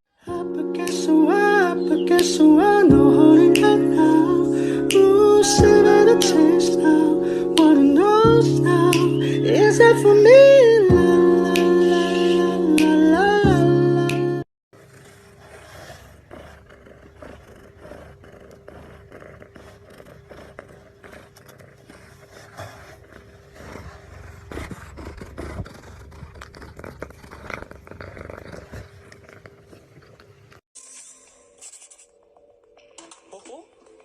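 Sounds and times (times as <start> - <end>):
scraping and rustling: 14.8 - 32.2.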